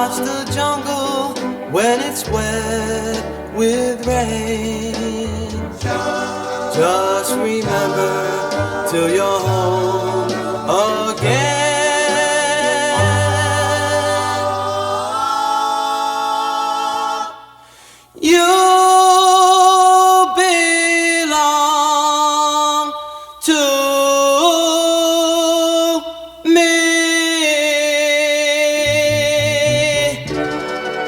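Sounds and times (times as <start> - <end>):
vocal group singing harmony: 0.0 - 20.7.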